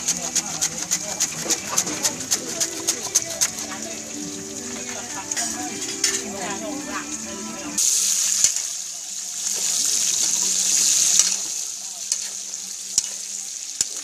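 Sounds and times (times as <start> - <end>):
spatula tapping pan: 0.0 - 4.0
pork sizzling in hot oil: 0.0 - 14.0.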